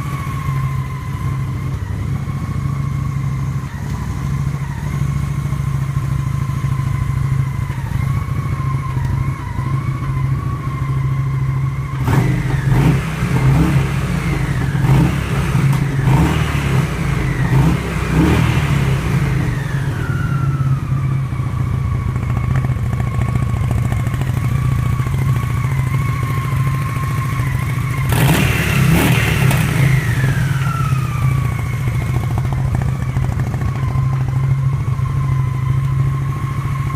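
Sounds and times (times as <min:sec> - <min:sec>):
motorcycle engine idling and revving: 0:00.0 - 0:36.9
steady high whine: 0:13.3 - 0:36.9.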